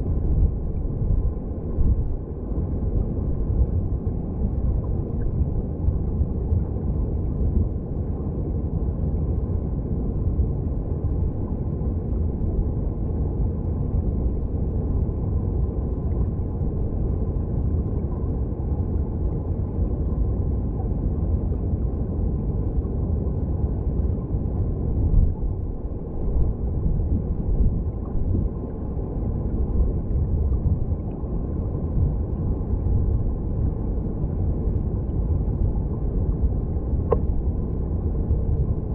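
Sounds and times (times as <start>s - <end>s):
muffled underwater stream rumble: 0.0s - 38.9s.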